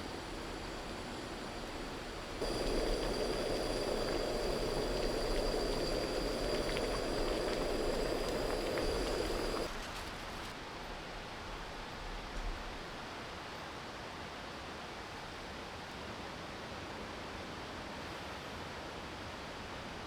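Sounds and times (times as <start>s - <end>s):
faint high steady tone: 0.0s - 9.7s
rushing rain: 1.7s - 9.7s.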